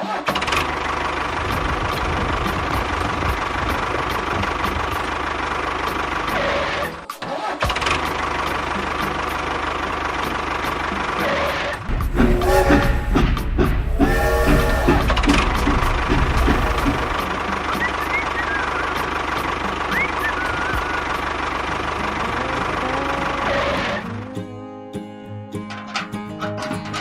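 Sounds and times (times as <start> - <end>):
music: 1.7 - 27.0
small engine running: 7.8 - 24.1.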